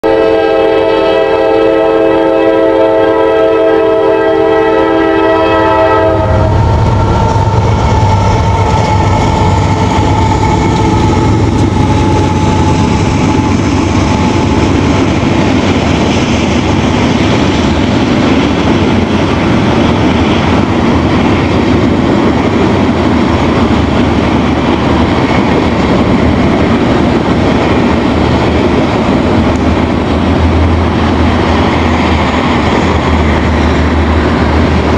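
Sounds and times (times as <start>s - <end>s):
locomotive air horn: 0.0s - 12.9s
diesel locomotive engine rumble: 0.0s - 34.9s
wheels rolling on rails: 6.5s - 34.9s.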